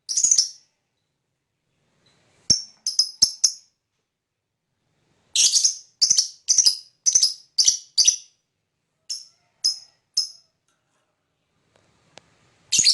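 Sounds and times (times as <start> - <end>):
bird chirping: 0.0 - 1.1, 2.5 - 3.8, 5.3 - 10.6, 12.7 - 12.9.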